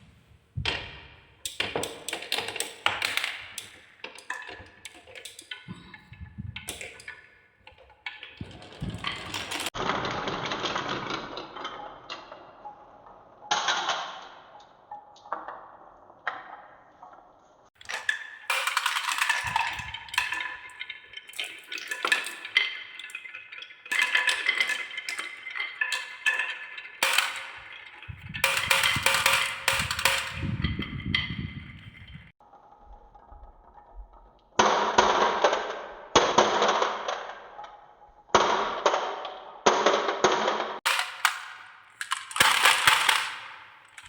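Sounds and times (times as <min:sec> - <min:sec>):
marbles clattering on wooden track: 0:00.6 - 0:17.0, 0:17.8 - 0:32.4, 0:34.5 - 0:44.0
low rolling rumble: 0:28.1 - 0:29.0.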